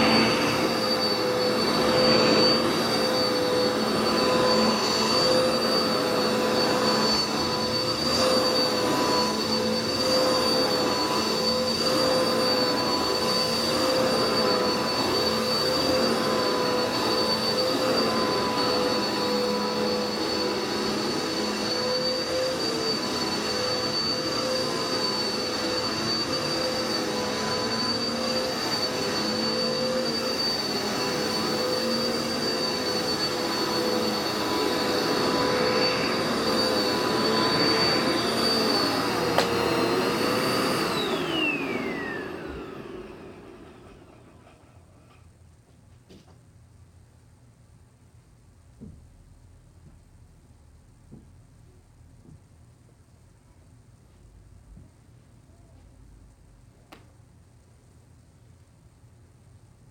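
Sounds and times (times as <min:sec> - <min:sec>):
vacuum cleaner running: 0:00.0 - 0:45.3.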